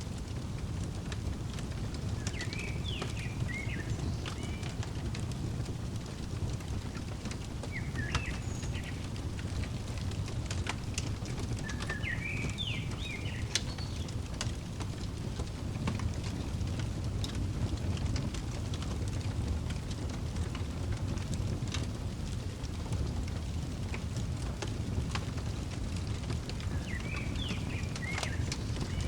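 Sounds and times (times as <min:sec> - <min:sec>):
wood fire crackling and popping: 0:00.0 - 0:29.0
songbird chirping: 0:01.5 - 0:14.2, 0:25.9 - 0:29.0.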